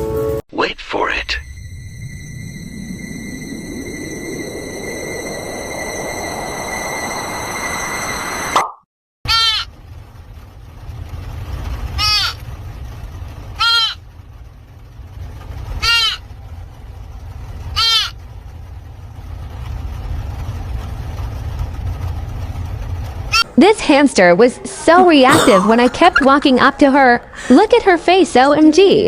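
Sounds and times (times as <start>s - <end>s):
steady low rumble: 0.6s - 8.6s, 9.7s - 29.0s
animal high-pitched calls: 9.3s - 9.7s, 12.0s - 12.4s, 13.6s - 14.0s, 15.8s - 16.3s, 17.7s - 18.2s.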